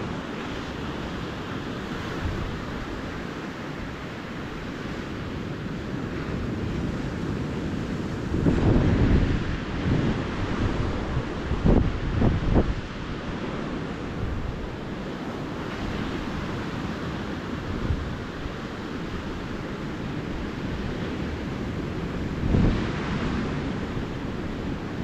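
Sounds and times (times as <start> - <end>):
small waves on a beach: 0.0 - 25.0
wind buffeting microphone: 0.0 - 25.0.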